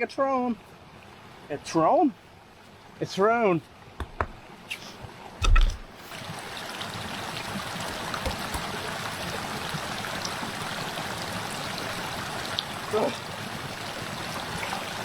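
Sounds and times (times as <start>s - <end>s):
running water: 0.0s - 15.0s
water drips and ticks: 2.1s - 15.0s
knocks: 4.0s - 4.4s, 7.9s - 8.7s.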